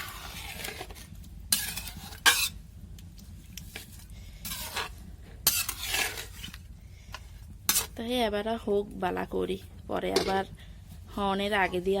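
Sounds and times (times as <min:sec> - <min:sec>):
spoon scraping cooking pot: 0:00.0 - 0:02.6, 0:03.6 - 0:08.0.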